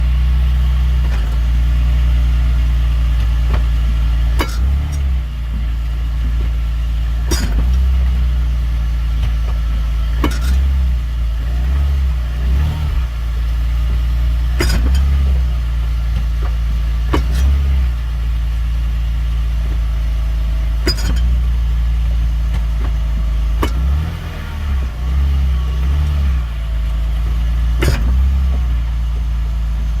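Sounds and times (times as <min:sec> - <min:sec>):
car engine idling: 0:00.0 - 0:30.0
sharp clunk from car: 0:03.2 - 0:06.6, 0:07.2 - 0:07.9, 0:09.2 - 0:10.7, 0:14.6 - 0:15.3, 0:16.1 - 0:17.7, 0:20.8 - 0:21.4, 0:22.5 - 0:23.9, 0:27.8 - 0:28.8.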